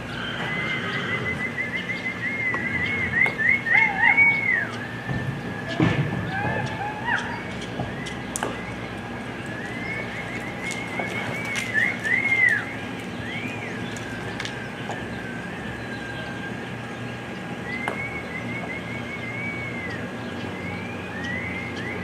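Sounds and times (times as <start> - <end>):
horse whinnying: 0.1 - 1.5.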